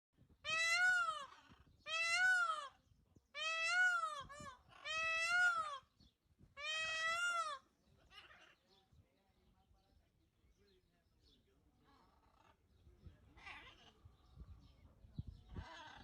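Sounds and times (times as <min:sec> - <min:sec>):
peacock wailing calls: 0:00.4 - 0:02.8, 0:03.4 - 0:06.0, 0:06.6 - 0:08.6.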